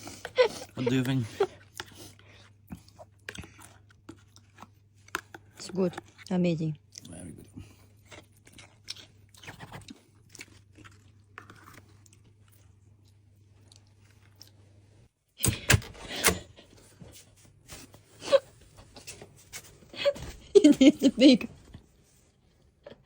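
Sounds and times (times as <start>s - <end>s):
crunchy chewing of pastry: 0.0s - 14.9s.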